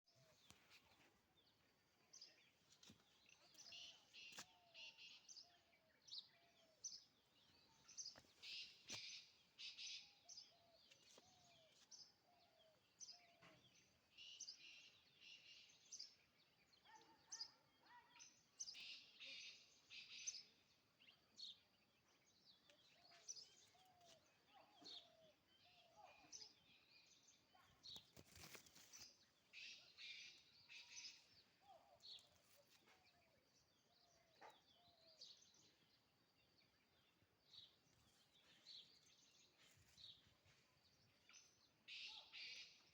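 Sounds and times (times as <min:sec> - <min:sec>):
rustling: 0:28.0 - 0:29.2.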